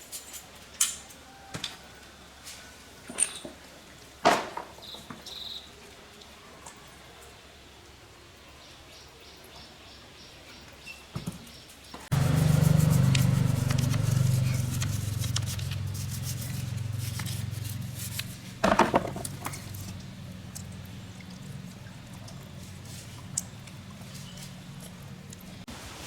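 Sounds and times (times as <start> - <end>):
loud clatter: 12.1 - 20.2
motor humming: 12.1 - 25.6.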